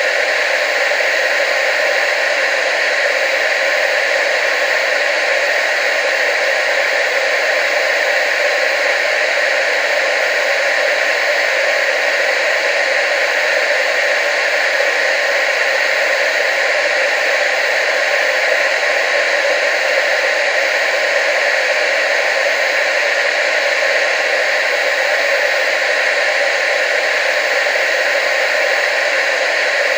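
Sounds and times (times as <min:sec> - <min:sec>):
tv static hiss: 0:00.0 - 0:29.9.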